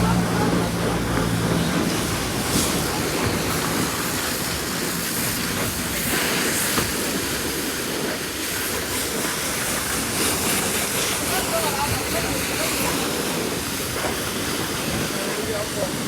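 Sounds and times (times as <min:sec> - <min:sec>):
pressure washer spraying water: 0:00.0 - 0:16.0.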